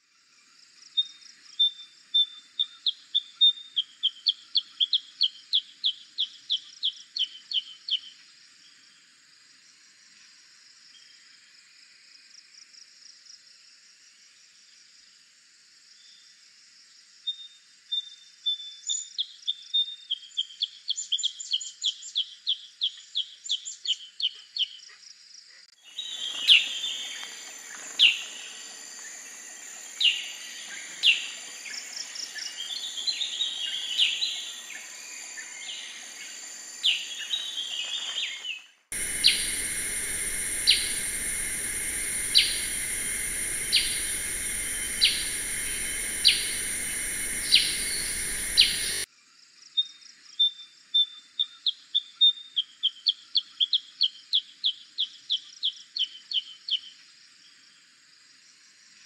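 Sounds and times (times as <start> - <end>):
steady high hiss: 25.8 - 49.1
bulbul calls and chattering: 25.9 - 38.0, 39.0 - 49.0.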